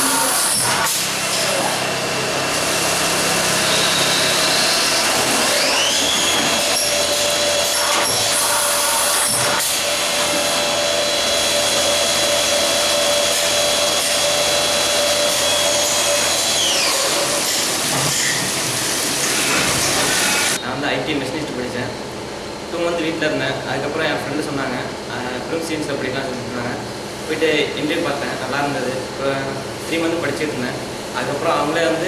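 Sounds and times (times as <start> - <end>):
cnc machine running: 0.0 - 20.6
spindle motor whine: 0.0 - 20.7.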